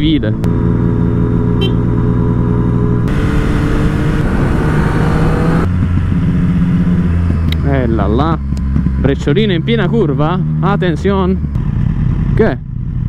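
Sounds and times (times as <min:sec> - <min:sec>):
motorcycle engine running: 0:00.0 - 0:13.0
rush of wind noise: 0:03.1 - 0:07.6.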